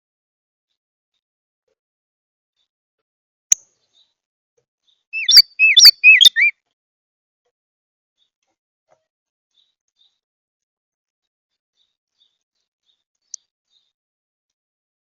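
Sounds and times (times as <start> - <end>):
bird chirping: 5.2 - 6.5.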